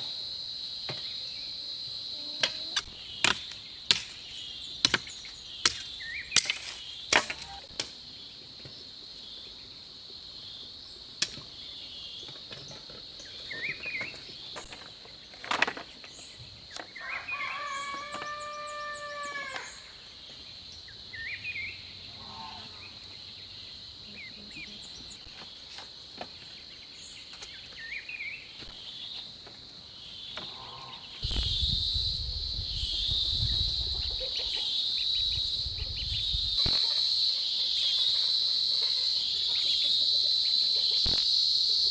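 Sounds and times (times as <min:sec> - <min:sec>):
high insect drone: 0:00.0 - 0:15.2, 0:16.1 - 0:27.2, 0:27.8 - 0:41.9
bird chirps: 0:02.8 - 0:07.7, 0:13.2 - 0:14.7
rooster crowing: 0:17.0 - 0:19.8.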